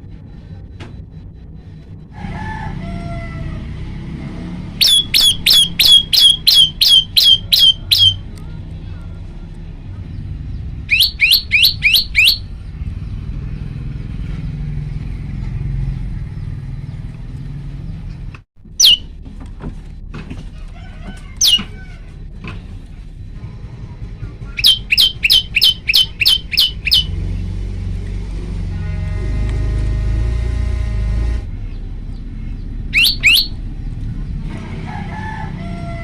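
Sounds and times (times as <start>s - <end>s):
steady low hum: 0.0s - 14.4s
bird calling sharp high notes: 4.8s - 8.2s, 10.9s - 12.5s, 18.8s - 19.1s, 21.4s - 21.7s, 24.6s - 27.2s, 32.9s - 33.6s.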